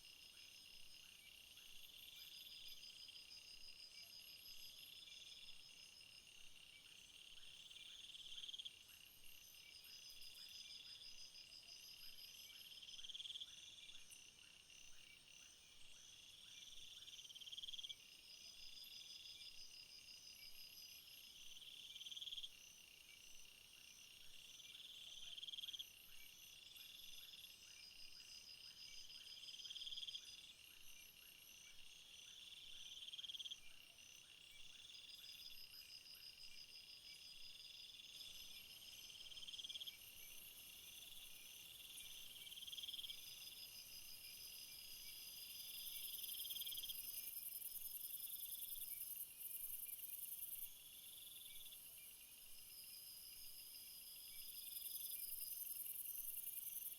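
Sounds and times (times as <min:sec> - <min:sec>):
loud insect trill: 0:35.0 - 0:56.9.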